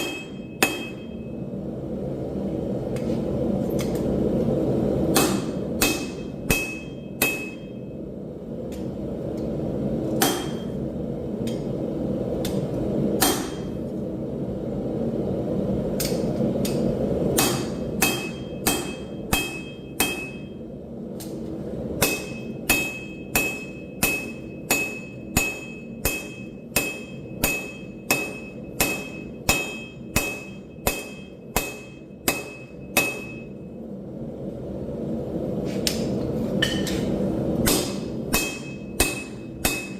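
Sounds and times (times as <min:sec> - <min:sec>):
hammer blows on steel anvil: 0:00.0 - 0:01.3, 0:05.2 - 0:07.8, 0:37.6 - 0:39.9.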